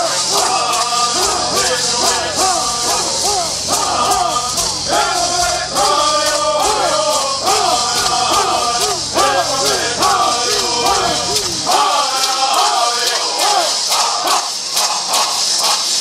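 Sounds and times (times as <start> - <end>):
gourd rattles shaking: 0.0 - 16.0
men singing: 0.0 - 16.0.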